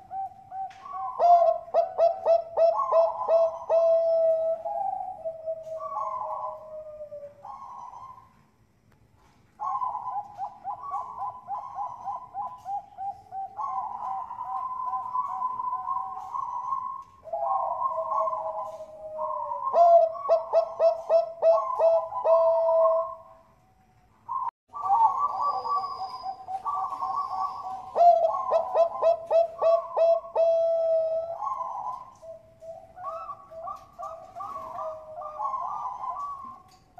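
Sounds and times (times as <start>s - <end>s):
doves cooing: 0.0s - 36.9s.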